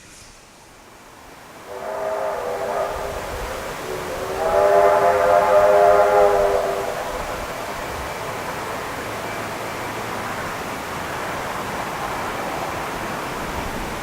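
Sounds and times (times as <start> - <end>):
steam locomotive whistle: 1.5 - 9.4.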